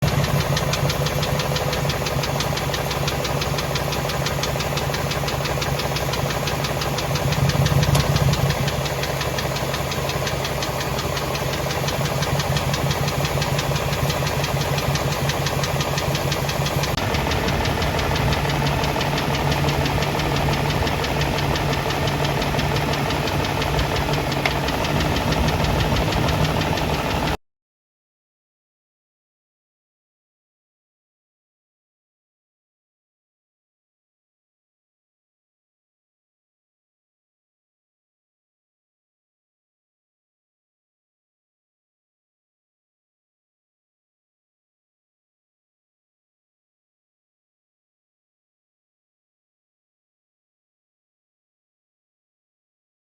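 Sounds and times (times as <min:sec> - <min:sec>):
engine running with knocking rattle: 0:00.0 - 0:27.4.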